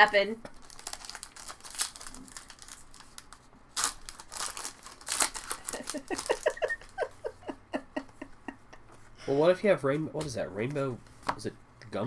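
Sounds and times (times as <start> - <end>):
foil wrappers tearing and crinkling: 0.5 - 6.9.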